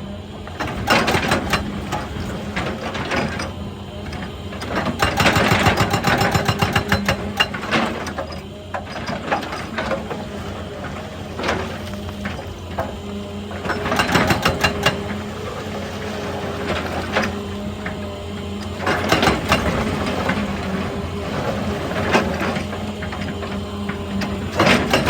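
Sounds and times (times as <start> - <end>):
excavator engine hum: 0.0 - 25.0.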